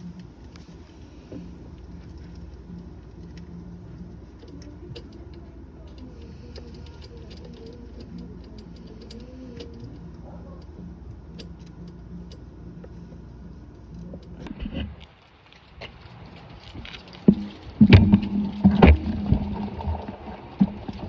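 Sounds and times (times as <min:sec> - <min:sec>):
electric motor hum: 0:00.0 - 0:15.0.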